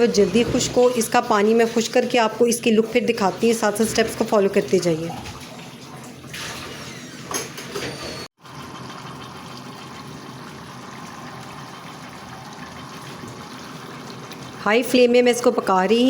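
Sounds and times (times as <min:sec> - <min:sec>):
curry bubbling and sizzling: 0:08.4 - 0:15.7.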